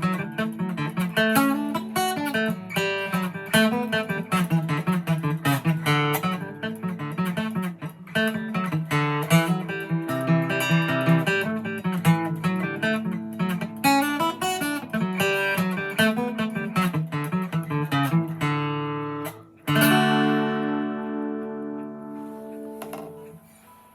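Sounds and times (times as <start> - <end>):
acoustic guitar melody: 0.0 - 23.9
strummed guitar chord: 19.7 - 23.8.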